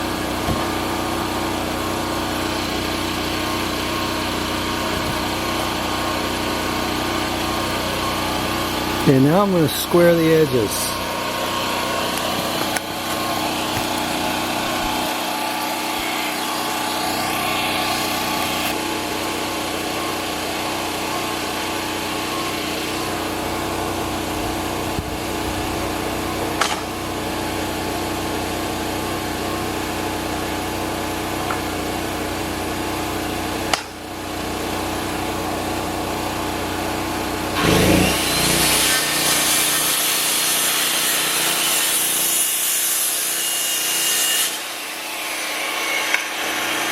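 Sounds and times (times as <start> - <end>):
saw blade cutting wood: 0.0 - 18.8, 22.3 - 27.0, 37.5 - 46.9
bandsaw mill running: 0.0 - 46.9.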